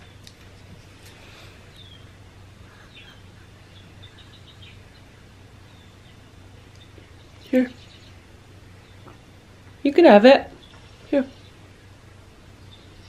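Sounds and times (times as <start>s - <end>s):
faint bird chirps: 0.0s - 9.3s
steady low hum: 0.0s - 13.0s.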